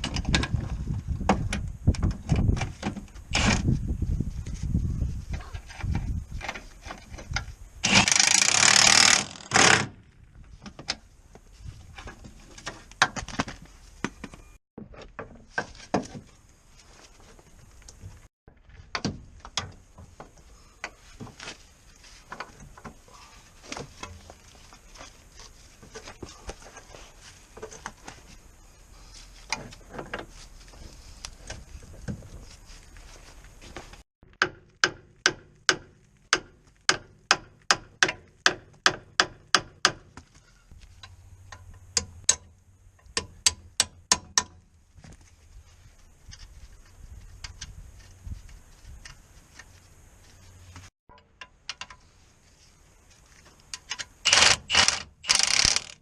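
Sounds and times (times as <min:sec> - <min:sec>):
metallic clicks and knocks: 0:51.1 - 0:52.0.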